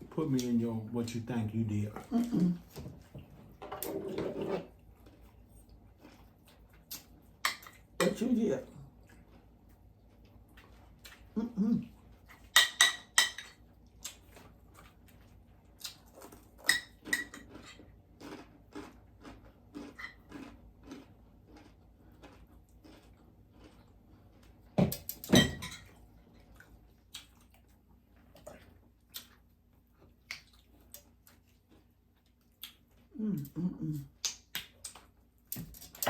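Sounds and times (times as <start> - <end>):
dishes and utensils clinking: 12.6 - 13.6, 25.2 - 25.9.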